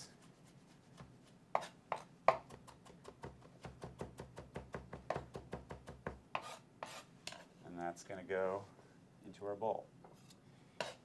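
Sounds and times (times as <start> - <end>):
knife chopping on board: 1.0 - 7.0.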